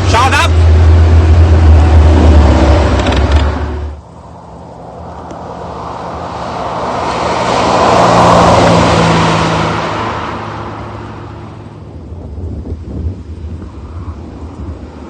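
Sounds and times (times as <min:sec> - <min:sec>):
car driving past: 0:00.5 - 0:12.3.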